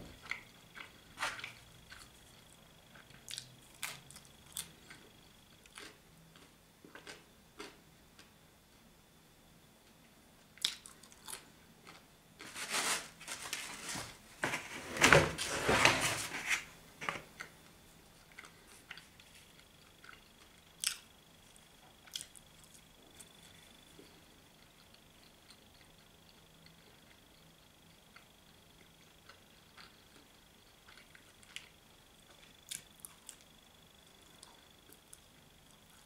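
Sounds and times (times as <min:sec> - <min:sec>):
chewing and crunching pizza crust: 0:00.0 - 0:08.4, 0:10.5 - 0:14.7, 0:16.3 - 0:36.0
rustling: 0:12.4 - 0:17.2.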